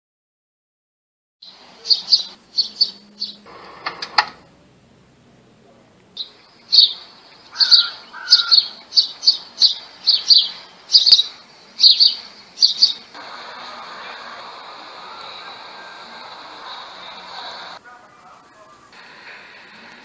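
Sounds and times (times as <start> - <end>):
small bird chirping: 1.4 - 3.5, 6.1 - 13.2
steady hiss: 1.5 - 20.0.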